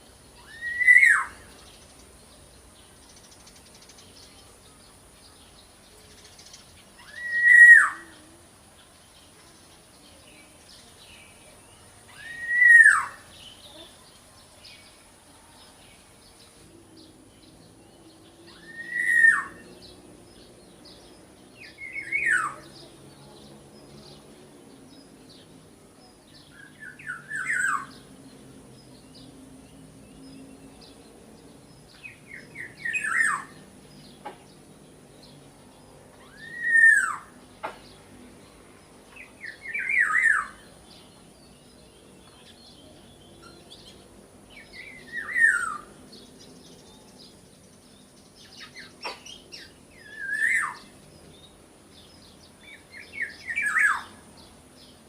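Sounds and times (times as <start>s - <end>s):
small birds twittering: 0.0s - 55.0s
oriole calling: 0.4s - 1.5s.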